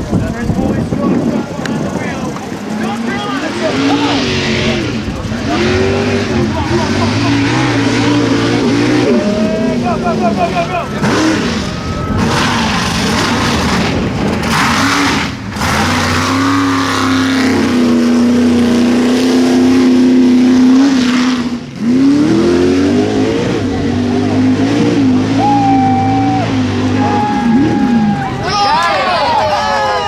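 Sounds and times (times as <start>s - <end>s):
truck engine revving: 0.0s - 30.0s.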